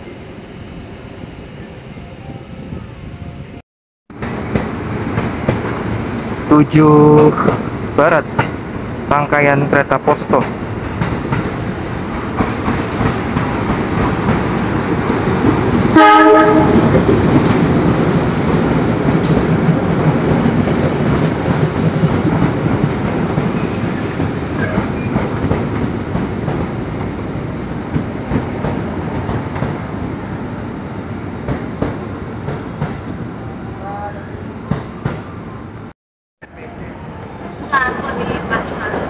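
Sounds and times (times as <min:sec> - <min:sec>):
train wheels rumbling and clattering: 0:04.1 - 0:30.6, 0:31.3 - 0:33.2, 0:37.4 - 0:39.0
train horn blast: 0:15.9 - 0:16.9.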